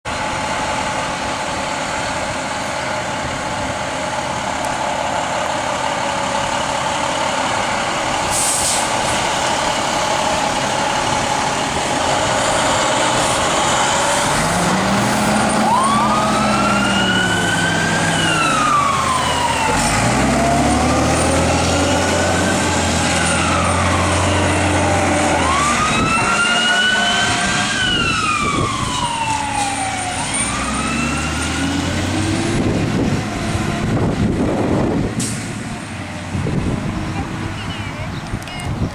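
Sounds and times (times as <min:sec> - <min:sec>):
emergency sirens wailing: 0:00.1 - 0:38.8
fire truck engine running: 0:00.1 - 0:38.9
short hiss: 0:08.3 - 0:09.3.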